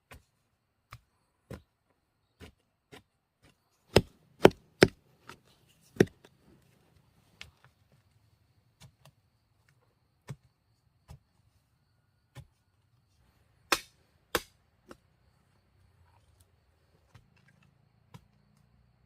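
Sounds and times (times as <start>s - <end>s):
tool chopping wood: 2.4s - 6.3s, 13.7s - 15.0s.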